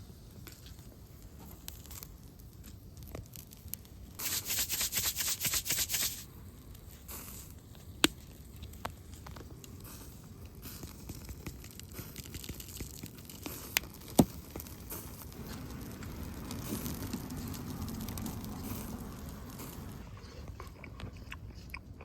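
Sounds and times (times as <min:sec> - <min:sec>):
packaging tearing: 0:04.2 - 0:06.2.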